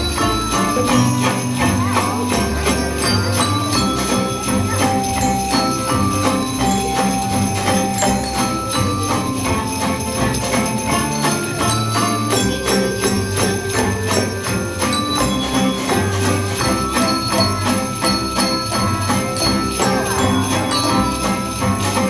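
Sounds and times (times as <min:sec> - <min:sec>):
music with melody and bass: 0:00.0 - 0:22.0
sleigh bells jingling to a beat: 0:00.0 - 0:22.0.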